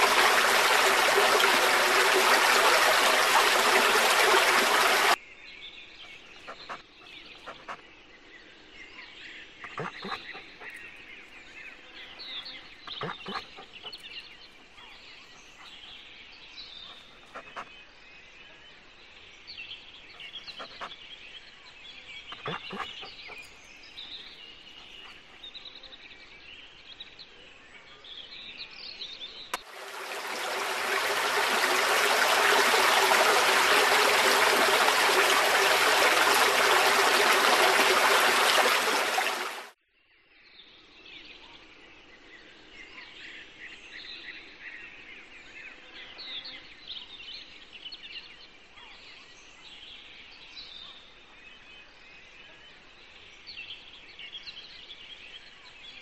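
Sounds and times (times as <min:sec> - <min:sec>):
birds chirping: 0:00.0 - 0:05.2, 0:09.4 - 0:17.7, 0:20.0 - 0:25.5, 0:29.4 - 0:39.7.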